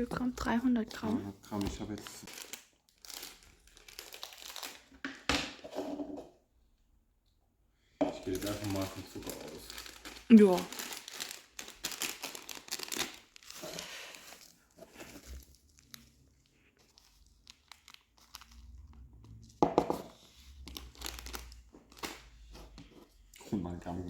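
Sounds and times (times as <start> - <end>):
sugar packet crinkling: 0.2 - 4.9, 8.3 - 18.9, 20.2 - 22.3.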